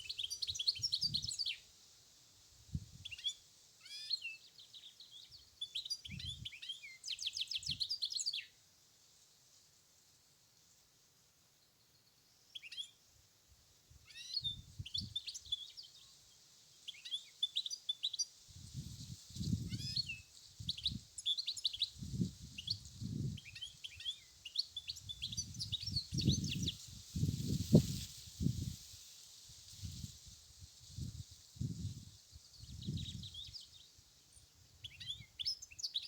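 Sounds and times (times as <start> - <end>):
wind rumble on microphone: 2.7 - 3.1, 18.5 - 21.1, 21.9 - 23.7, 24.9 - 33.6
finch twittering song: 19.4 - 27.8.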